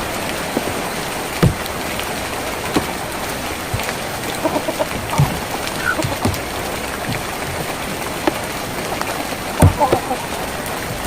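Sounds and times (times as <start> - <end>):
rain on a tin roof: 0.0 - 11.0
heavy drops knocking on metal: 1.4 - 8.6, 9.6 - 10.2.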